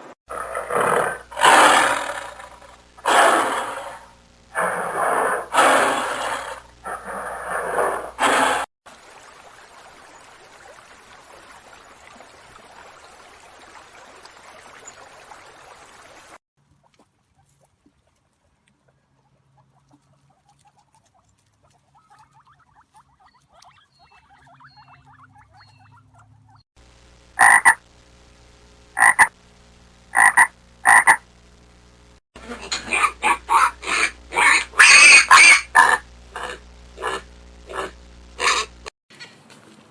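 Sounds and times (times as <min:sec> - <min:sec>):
loud animal calls: 0:00.3 - 0:08.7, 0:19.1 - 0:26.6, 0:27.4 - 0:27.8, 0:32.4 - 0:38.9
faint chirping: 0:16.9 - 0:26.6
short sharp animal calls: 0:32.5 - 0:38.8.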